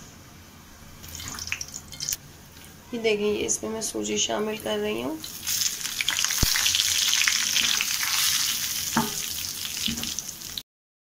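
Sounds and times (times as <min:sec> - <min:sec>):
semolina sizzling in ghee: 0:01.0 - 0:03.0, 0:03.8 - 0:10.6.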